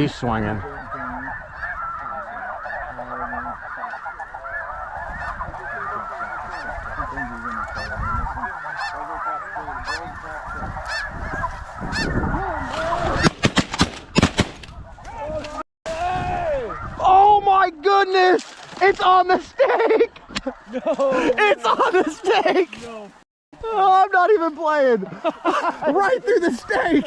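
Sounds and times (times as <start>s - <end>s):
geese honking: 0.0s - 13.5s, 16.5s - 22.8s, 23.8s - 27.0s
shotgun shots: 13.2s - 14.7s.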